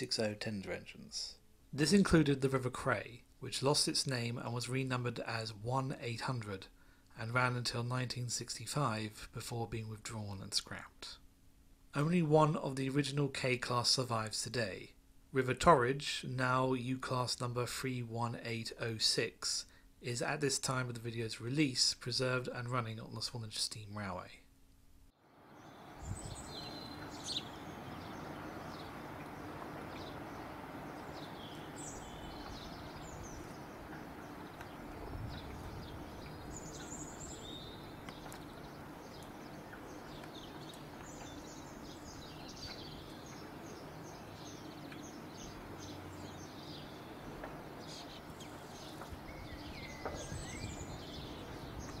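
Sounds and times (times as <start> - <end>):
steady background hum: 18.5 - 52.0
small birds chirping and twittering: 25.4 - 52.0.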